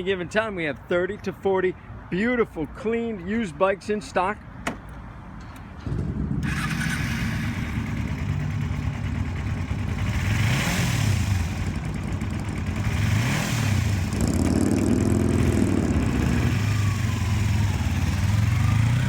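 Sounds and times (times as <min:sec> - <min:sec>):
motorcycle engine starting and idling: 0:05.5 - 0:19.0.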